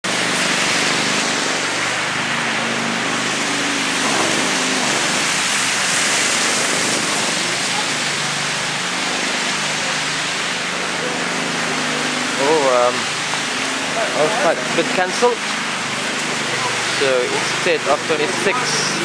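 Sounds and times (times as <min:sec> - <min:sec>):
faint voices: 0:07.3 - 0:19.0.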